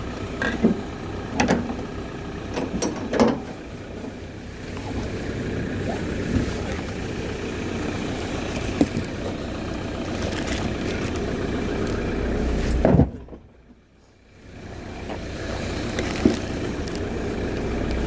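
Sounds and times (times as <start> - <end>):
engine and road rumble: 0.0 - 18.0.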